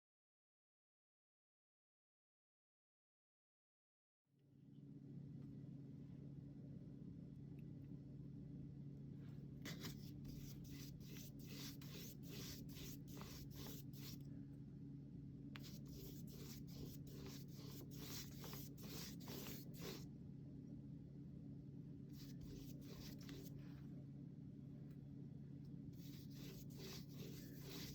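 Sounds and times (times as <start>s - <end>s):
faint low hum: 4.4s - 27.9s
paintbrush swishing on canvas: 9.7s - 14.2s, 15.6s - 20.0s, 22.2s - 23.8s, 26.0s - 27.9s.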